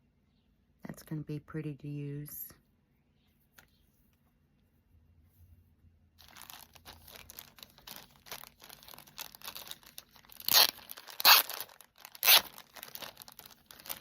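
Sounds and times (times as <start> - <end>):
crinkly packaging rustling: 6.2 - 14.0.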